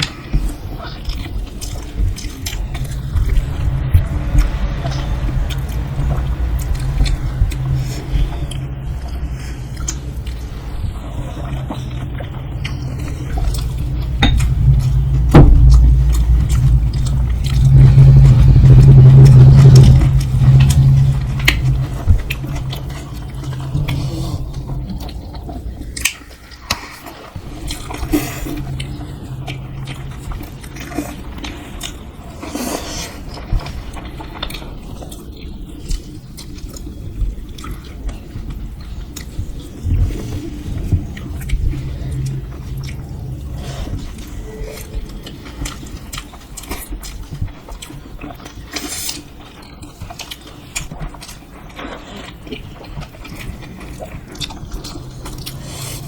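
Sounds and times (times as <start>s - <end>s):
loud low rumble: 0.0s - 26.1s, 27.3s - 32.5s, 38.3s - 46.2s
eating with sharp clicks and scrapes: 0.0s - 56.0s.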